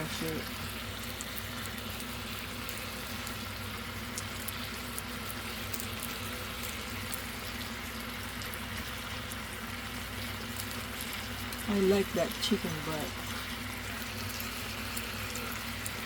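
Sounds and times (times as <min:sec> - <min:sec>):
chicken sizzling in a pan: 0:00.0 - 0:16.0
low steady hum: 0:08.8 - 0:16.0.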